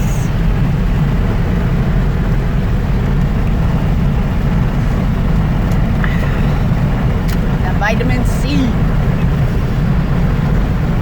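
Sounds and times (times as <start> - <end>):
tyres hissing on road: 0.0 - 0.5, 4.2 - 11.0
car engine and tyre rumble: 0.0 - 11.0.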